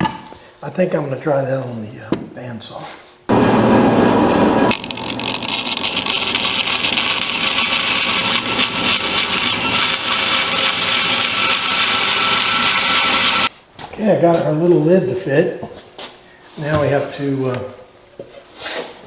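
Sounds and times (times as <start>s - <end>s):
bandsaw cutting plywood: 3.3s - 13.5s.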